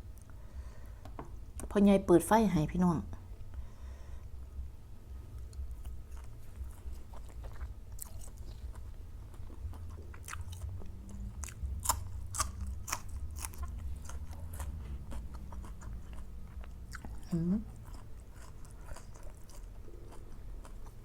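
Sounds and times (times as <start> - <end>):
steady low hum: 0.0 - 21.0
person chewing crunchy food: 5.4 - 21.0.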